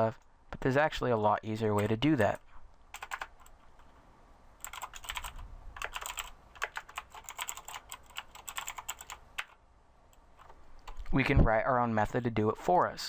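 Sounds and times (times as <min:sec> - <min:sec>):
computer keyboard typing: 0:01.7 - 0:03.9, 0:04.6 - 0:09.6.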